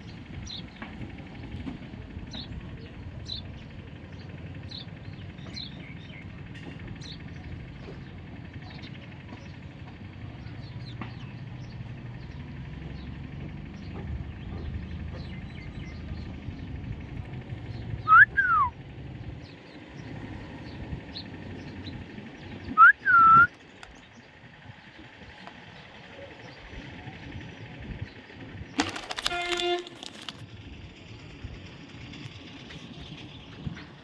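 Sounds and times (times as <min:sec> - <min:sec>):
parrot whistling: 0:18.1 - 0:18.7, 0:22.8 - 0:23.5.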